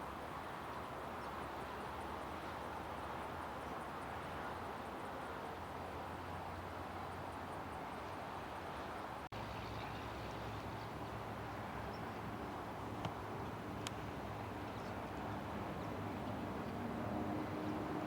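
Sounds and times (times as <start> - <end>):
faint steady engine tone: 0.0 - 18.0
low hum of distant engines: 0.0 - 18.0
faint clicks: 13.8 - 14.0.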